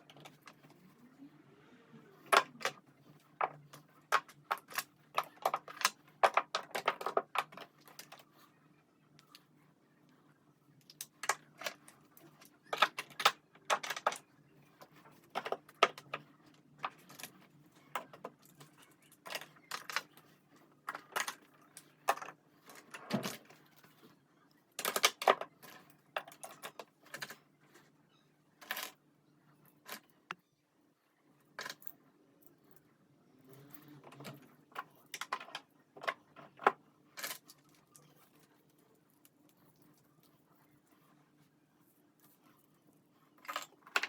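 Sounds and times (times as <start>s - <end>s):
small objects clicking and tapping: 3.4s - 8.2s, 10.8s - 20.2s, 24.7s - 27.4s.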